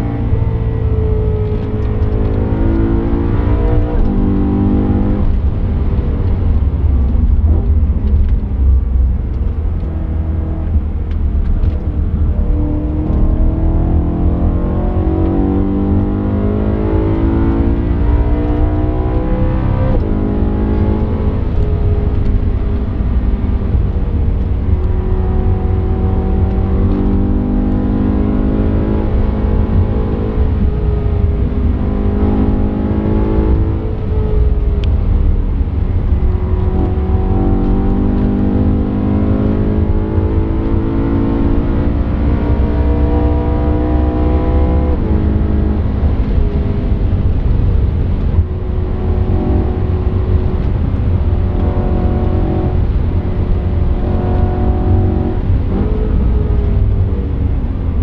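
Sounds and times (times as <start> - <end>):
loud low rumble: 0.0 - 16.7, 42.2 - 58.0
car engine revving: 0.0 - 58.0.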